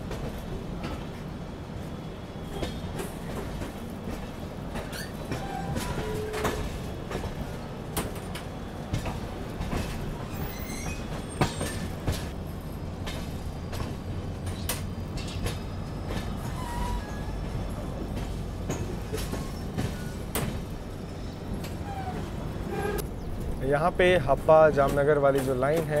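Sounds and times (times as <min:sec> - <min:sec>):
train rumble: 0:00.0 - 0:26.0
wheels clattering over rail joints: 0:02.5 - 0:26.0
high wheel squeal: 0:10.2 - 0:12.0, 0:15.6 - 0:17.8.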